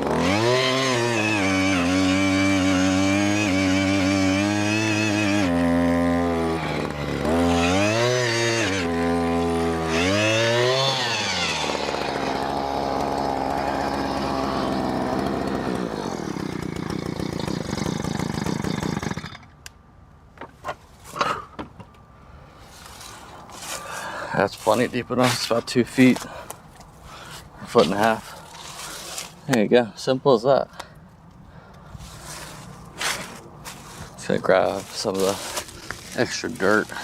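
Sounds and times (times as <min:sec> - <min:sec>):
auger engine revving: 0:00.0 - 0:19.4.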